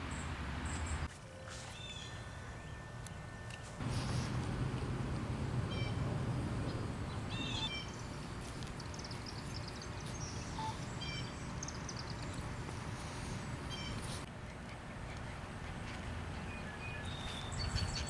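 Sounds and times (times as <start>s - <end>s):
birds chirping: 1.7s - 18.0s
low background rumble: 3.8s - 14.0s.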